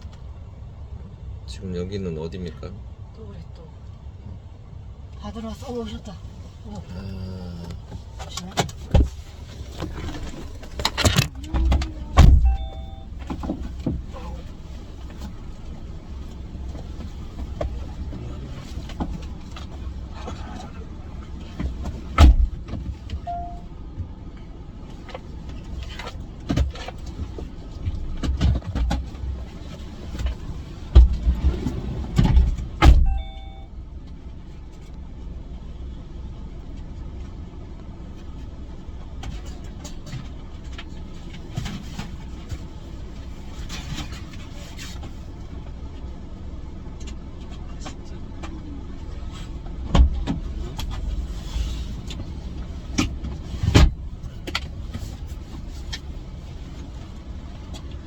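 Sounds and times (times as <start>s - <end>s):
car engine rumble: 0.0s - 58.0s
short beep: 12.4s - 13.2s, 23.2s - 23.7s, 33.0s - 33.7s
two-note tone: 12.4s - 13.2s, 23.3s - 23.7s, 33.0s - 33.7s.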